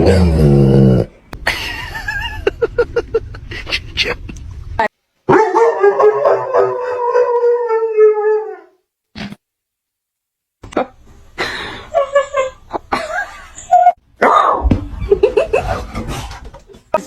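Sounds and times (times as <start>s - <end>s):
dog howling: 5.3s - 8.8s.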